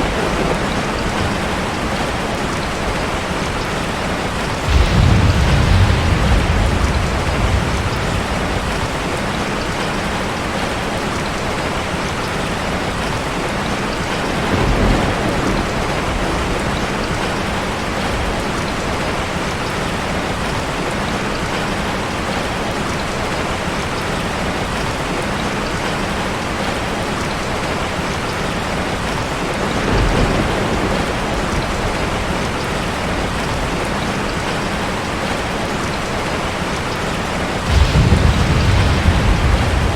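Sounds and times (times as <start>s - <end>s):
waterfall rushing: 33.5s - 39.9s
deep low rumbles: 37.7s - 39.9s.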